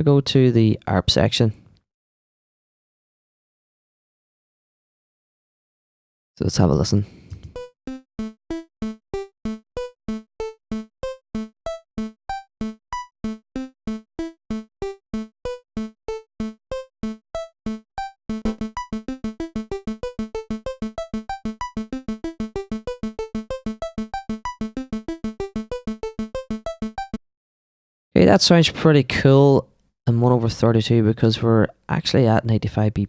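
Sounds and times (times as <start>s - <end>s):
arpeggiated synth notes: 7.5s - 27.2s.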